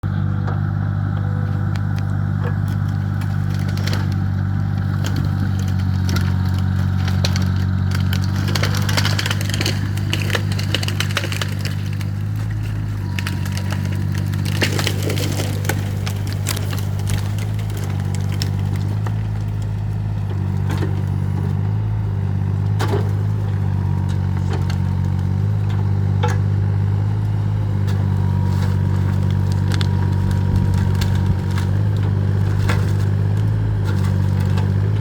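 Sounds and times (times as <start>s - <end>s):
machine engine running: 0.0s - 35.0s
wood cracking and splintering: 0.0s - 35.0s.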